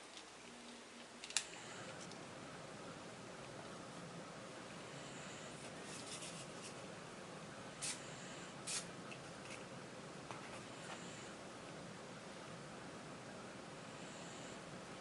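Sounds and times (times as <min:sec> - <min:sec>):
steady background hiss: 0:00.0 - 0:15.0
short hissing sounds: 0:07.8 - 0:08.9.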